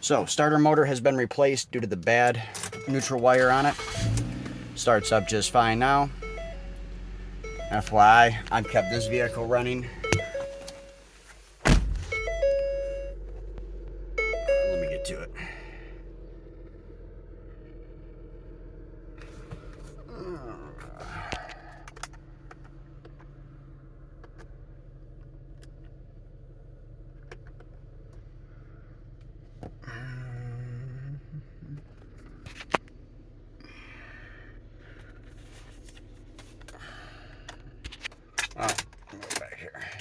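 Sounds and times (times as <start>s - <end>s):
car engine idling: 0.0s - 40.0s
handling clicks and knocks: 7.6s - 11.0s, 37.5s - 40.0s
brief louder tone: 14.2s - 15.3s.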